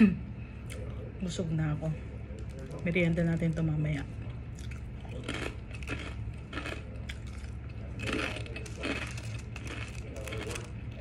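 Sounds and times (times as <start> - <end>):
steady low hum: 0.0 - 11.0
chewing crispy food: 4.1 - 11.0.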